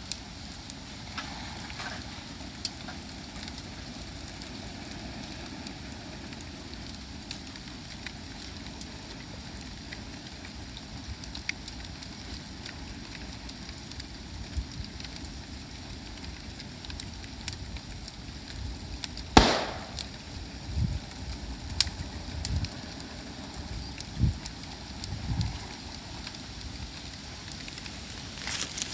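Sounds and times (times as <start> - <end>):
bonfire crackling: 0.0 - 28.9
loud sharp crack: 19.4 - 20.2.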